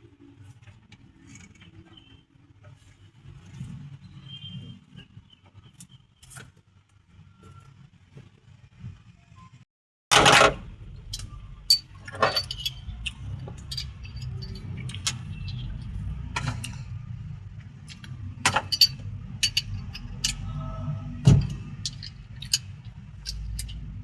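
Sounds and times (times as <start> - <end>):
metal tools clinking: 10.2 - 17.0, 17.8 - 24.0.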